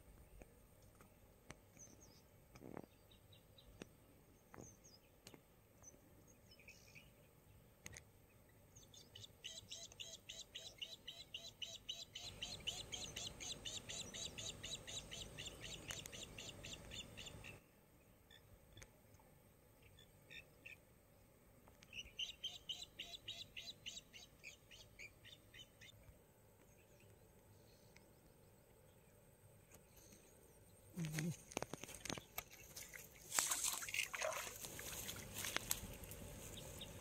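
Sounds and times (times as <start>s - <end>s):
birds chirping: 8.3s - 17.6s, 36.5s - 37.0s.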